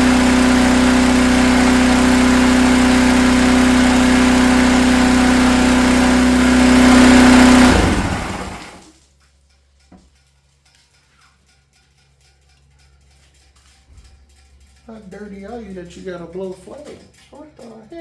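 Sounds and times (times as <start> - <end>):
pressure washer engine running: 0.0 - 8.8.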